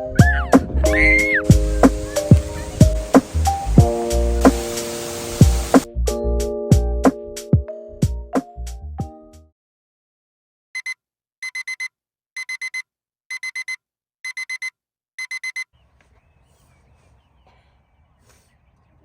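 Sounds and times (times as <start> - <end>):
faint outdoor ambience: 0.0 - 5.9, 15.8 - 19.0
alarm clock beeping: 10.8 - 15.7.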